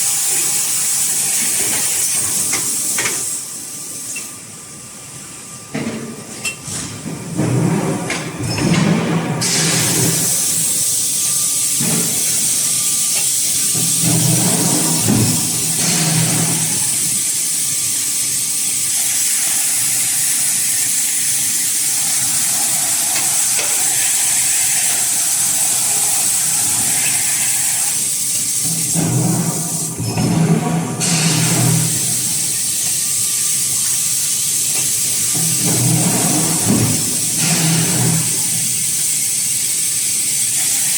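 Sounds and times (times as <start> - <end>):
compressed air hissing: 9.4 - 30.0, 31.0 - 40.9.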